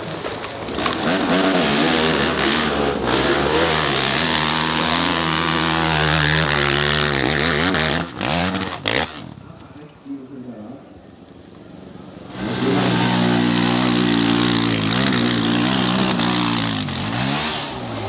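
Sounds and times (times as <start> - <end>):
dirt bike engine revving: 0.7 - 9.4, 12.3 - 18.0.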